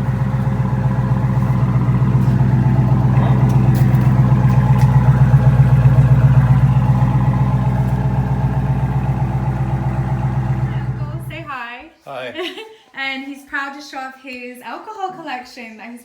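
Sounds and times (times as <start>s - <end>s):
car engine idling: 0.0s - 11.5s.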